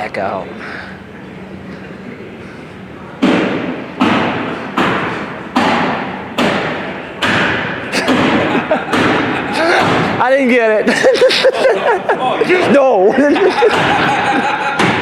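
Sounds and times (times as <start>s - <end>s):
heavy hammer blows echoing: 3.2s - 10.7s, 13.5s - 15.0s.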